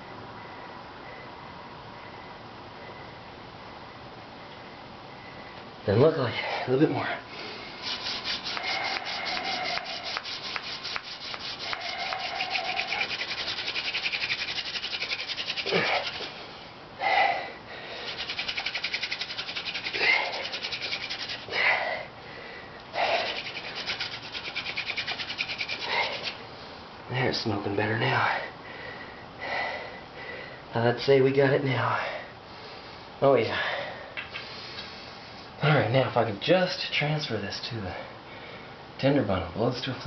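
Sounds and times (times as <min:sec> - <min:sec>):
person breathing heavily: 0:06.3 - 0:13.6, 0:15.0 - 0:24.1, 0:25.7 - 0:26.9, 0:28.2 - 0:30.7, 0:31.9 - 0:35.3
wood rubbing on wood: 0:07.6 - 0:16.5, 0:18.0 - 0:21.6, 0:23.0 - 0:26.4.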